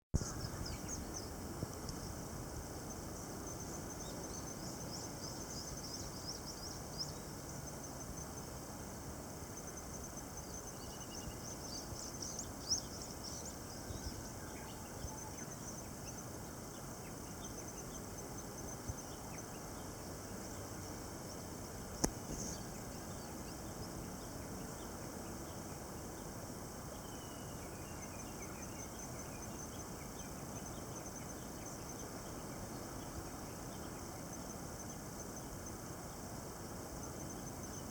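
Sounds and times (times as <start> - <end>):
insects chirping: 0.2 - 37.9
sharp click: 22.0 - 22.4.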